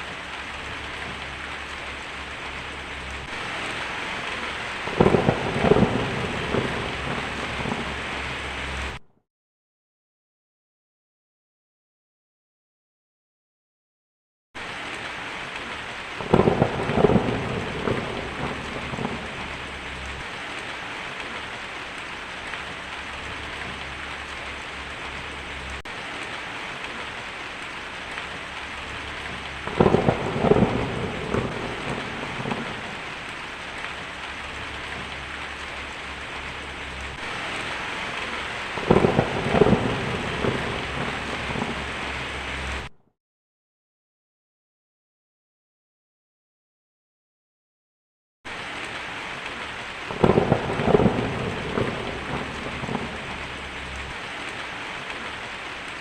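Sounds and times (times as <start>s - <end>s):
heavy rain on a tin roof: 0.0s - 9.0s, 14.6s - 42.9s, 48.5s - 56.0s
thunder rolling: 0.0s - 9.0s, 16.2s - 21.4s, 28.0s - 42.9s, 50.1s - 54.2s.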